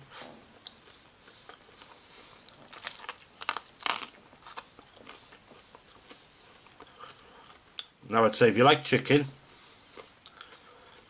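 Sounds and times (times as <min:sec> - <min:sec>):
crunchy chewing: 0:00.6 - 0:07.9, 0:09.6 - 0:11.0.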